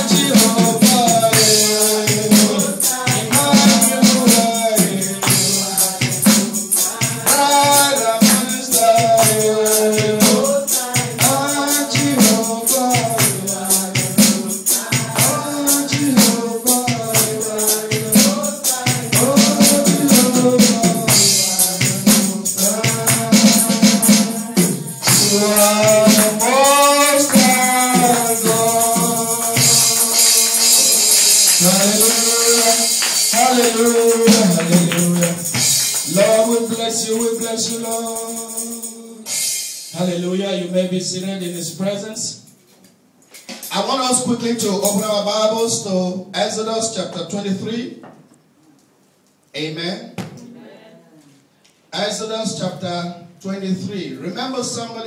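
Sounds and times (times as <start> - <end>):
tambourine beat: 0.0 - 41.8, 44.5 - 45.3
worship singing: 0.0 - 42.1.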